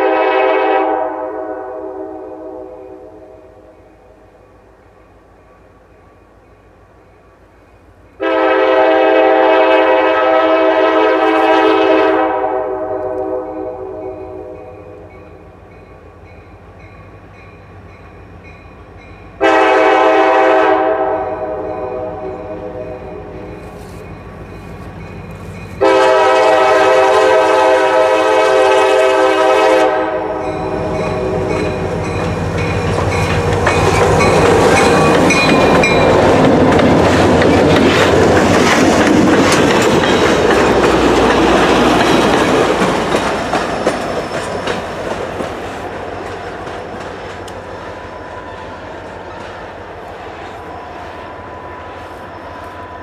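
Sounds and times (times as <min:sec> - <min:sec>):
multi-note train horn: 0:00.0 - 0:04.2, 0:08.2 - 0:15.6, 0:19.4 - 0:24.1, 0:25.8 - 0:32.2
crossing bell ringing: 0:13.5 - 0:19.7, 0:21.2 - 0:26.2, 0:30.2 - 0:36.8
wheels clattering over rail joints: 0:31.5 - 0:47.7.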